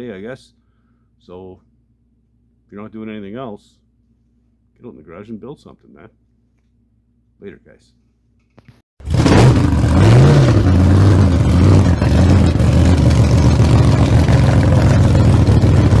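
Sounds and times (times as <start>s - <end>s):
loud engine running and revving: 9.0s - 16.0s.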